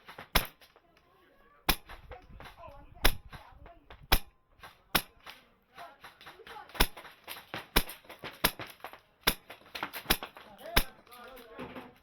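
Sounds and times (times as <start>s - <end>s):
airsoft gun shots: 0.0s - 0.7s, 1.7s - 11.0s
faint voices: 0.8s - 7.0s.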